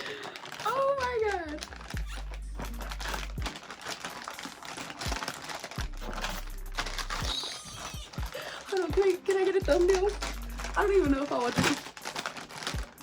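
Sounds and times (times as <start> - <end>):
background beat with deep bass: 1.9 - 3.5, 5.8 - 11.2.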